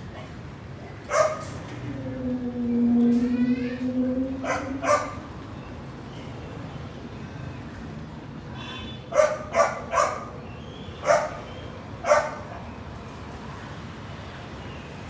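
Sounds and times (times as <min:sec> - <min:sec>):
dog barking: 0:01.1 - 0:01.4, 0:04.4 - 0:05.2, 0:09.1 - 0:10.4, 0:11.0 - 0:12.6
low background rumble: 0:01.7 - 0:05.8.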